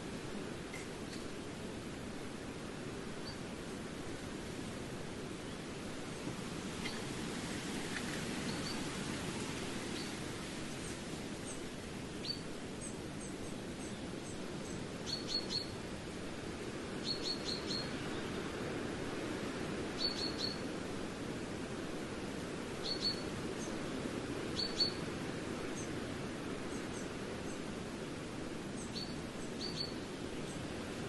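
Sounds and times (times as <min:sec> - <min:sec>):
small bird chirping: 0:20.0 - 0:20.6, 0:22.8 - 0:23.2, 0:28.8 - 0:30.0.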